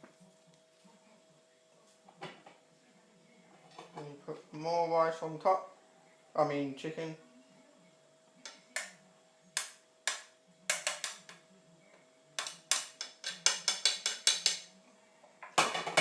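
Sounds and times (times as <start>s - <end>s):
utensil clicking against cookware: 9.6s - 11.4s, 12.4s - 14.7s.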